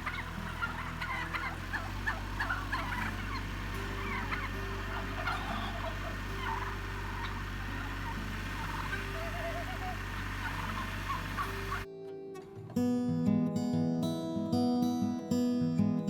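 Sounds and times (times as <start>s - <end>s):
steady low hum: 0.0s - 11.9s
turkey warbling call: 0.0s - 11.9s
turkeys gobbling: 0.0s - 11.9s.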